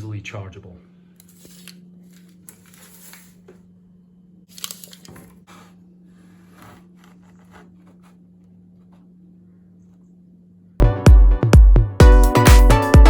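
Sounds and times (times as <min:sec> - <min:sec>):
handling rustling and scraping: 0:01.2 - 0:03.8, 0:04.5 - 0:09.1.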